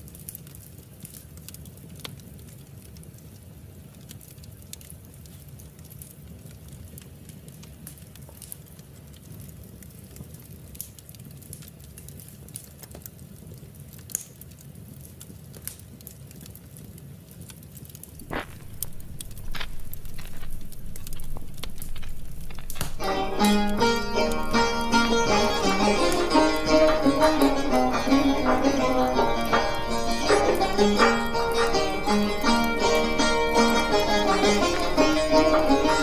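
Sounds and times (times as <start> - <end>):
wood fire crackling: 0.0 - 36.0
low steady rumble: 18.2 - 36.0
sharp pops: 18.2 - 36.0.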